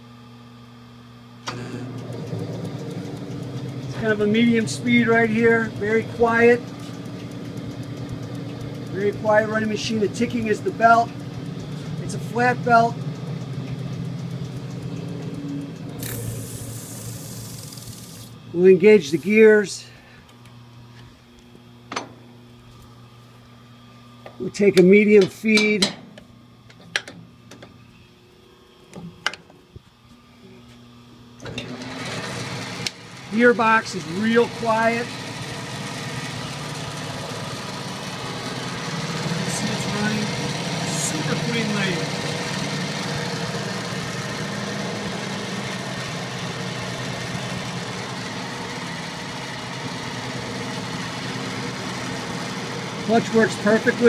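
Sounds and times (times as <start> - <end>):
lathe motor hum: 0.4 - 19.6, 31.4 - 54.0
drive belt ticking: 2.0 - 18.2, 32.8 - 54.0
drive belt ticks: 2.6 - 16.0.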